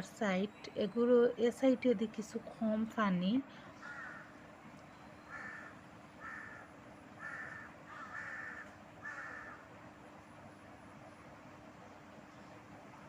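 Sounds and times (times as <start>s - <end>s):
crow cawing: 3.8s - 4.4s, 5.3s - 9.7s.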